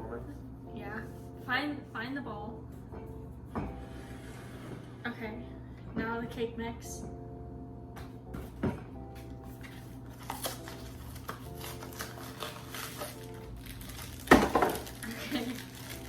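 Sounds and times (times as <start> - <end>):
background music with held notes: 0.0 - 16.0
packaging crinkling and rustling: 9.6 - 16.0.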